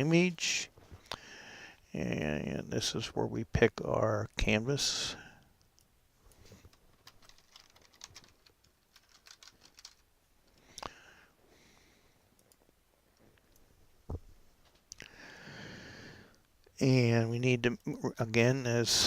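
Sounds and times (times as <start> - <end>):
computer clicking: 7.0 - 10.0.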